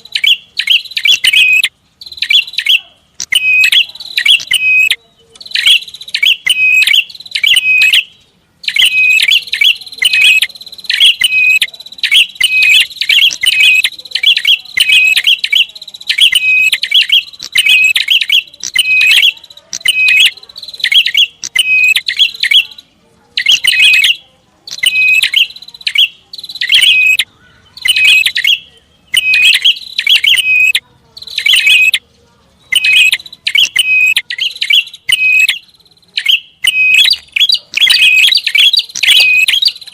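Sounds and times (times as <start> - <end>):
bird sharp high chirps: 0.0 - 39.9.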